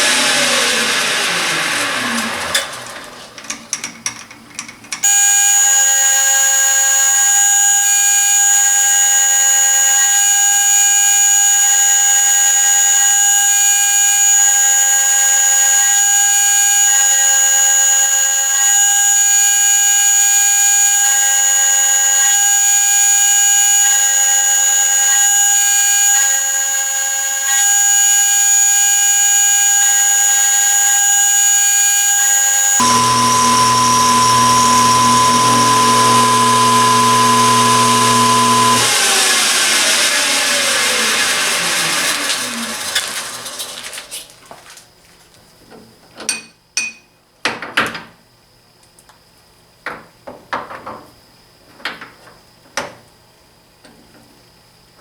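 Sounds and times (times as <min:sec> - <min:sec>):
machine tool high-pitched whine: 0:00.0 - 0:03.6, 0:05.0 - 0:44.1
lower machine tone: 0:05.0 - 0:42.9.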